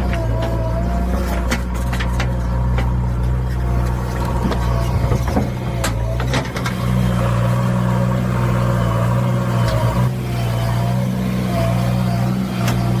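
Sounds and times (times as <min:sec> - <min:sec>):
excavator engine running: 0:00.0 - 0:13.0.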